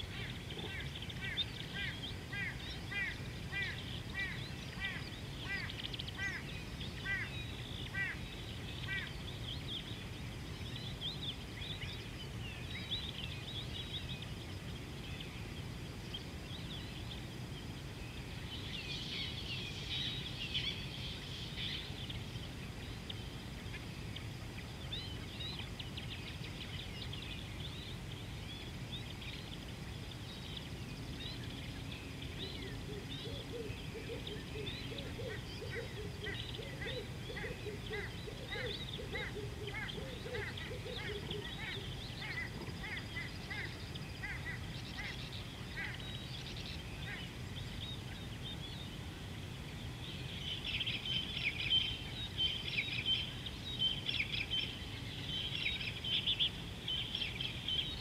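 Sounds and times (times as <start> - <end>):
rapid lower bird calls: 0.0 - 14.4, 16.6 - 49.2
wild birds chirping: 0.0 - 58.0.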